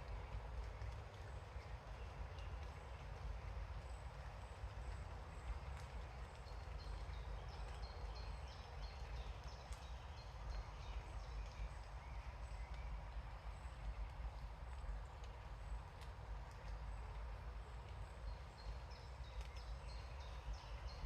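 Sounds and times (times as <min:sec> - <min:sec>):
low rumble with faint hiss: 0:00.0 - 0:21.0.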